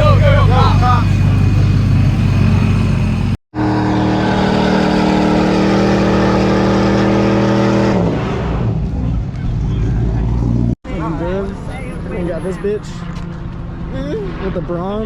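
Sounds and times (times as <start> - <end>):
car engine revving high: 0.0 - 9.0.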